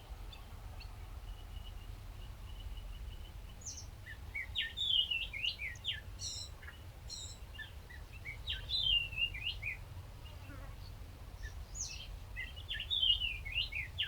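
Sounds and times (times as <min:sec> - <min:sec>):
songbird chirping and singing: 0:11.4 - 0:14.0.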